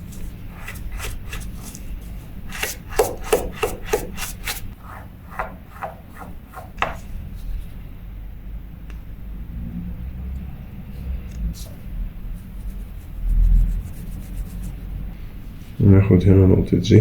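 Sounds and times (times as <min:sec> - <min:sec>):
rhythmic rubbing strokes: 0:00.0 - 0:07.2, 0:12.3 - 0:15.0.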